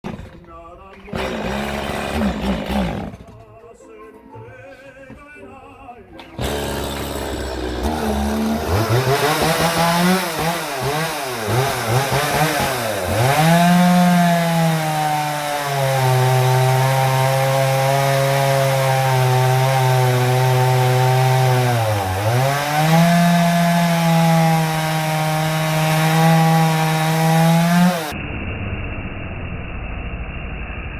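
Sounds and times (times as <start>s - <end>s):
chainsaw cutting wood: 0.0s - 3.5s, 6.2s - 28.2s.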